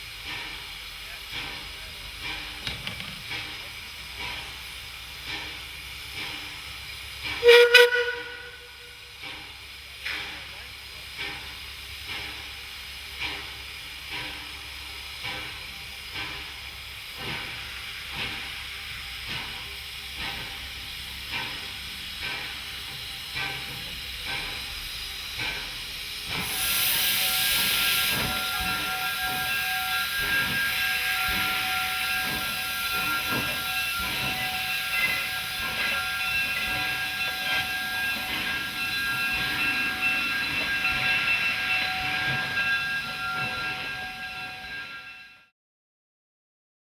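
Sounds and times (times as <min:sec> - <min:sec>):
steam locomotive chuffing: 0:00.0 - 0:45.5
steam hiss burst: 0:03.2 - 0:45.1
steam whistle chord: 0:07.4 - 0:09.0.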